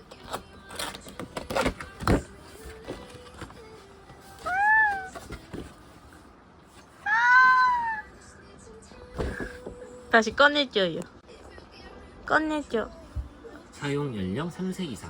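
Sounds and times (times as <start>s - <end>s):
cat meowing: 4.4s - 5.2s, 7.0s - 8.1s.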